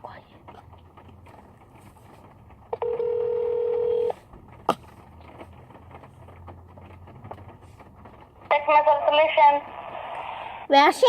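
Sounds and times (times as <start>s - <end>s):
phone call tone beep: 2.8s - 4.1s.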